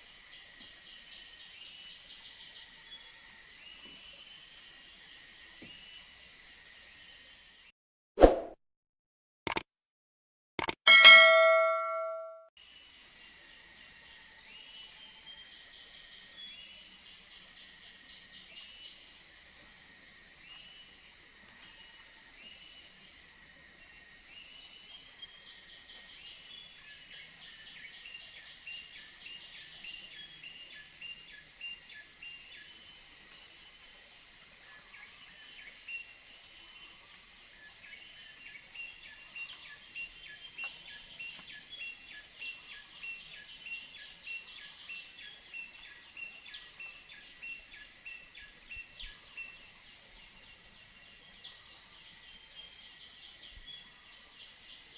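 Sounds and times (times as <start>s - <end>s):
insect chorus buzzing and chirping: 0.0s - 7.7s, 12.7s - 54.9s
clicks: 10.6s - 12.4s
bell-like metallic ding: 10.9s - 12.4s.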